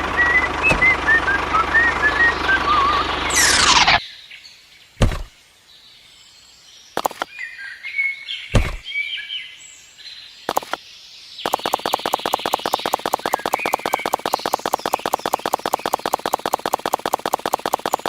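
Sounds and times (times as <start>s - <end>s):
short bird-like chirps: 2.3s - 4.0s, 11.4s - 18.0s
knocks and thuds: 5.0s - 5.3s, 8.5s - 8.9s.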